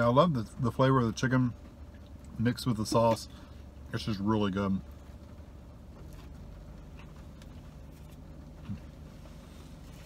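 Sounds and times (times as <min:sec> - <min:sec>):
low hum in car cabin: 0:00.0 - 0:10.0
faint chewing: 0:04.9 - 0:10.0.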